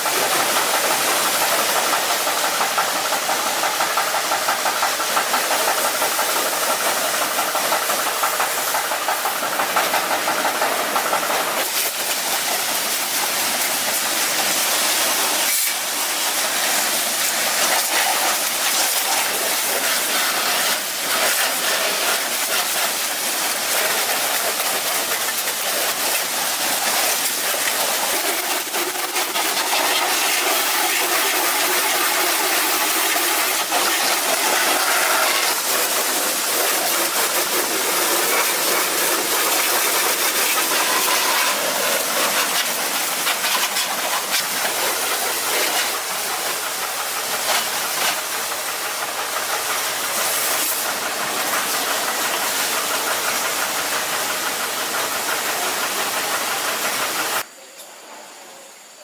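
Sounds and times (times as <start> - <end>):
loud steady hissing: 0.0 - 59.0.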